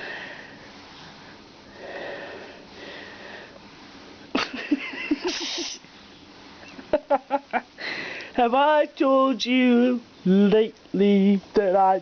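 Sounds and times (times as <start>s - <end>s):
hiss-like burst: 5.2s - 5.8s.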